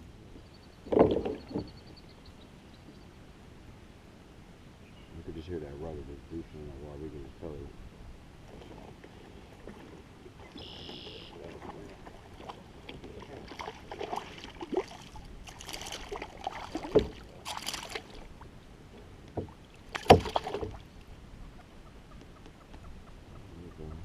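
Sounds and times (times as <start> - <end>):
knocks and thumps on kayak: 0.9 - 1.8, 15.6 - 18.0, 19.3 - 20.8.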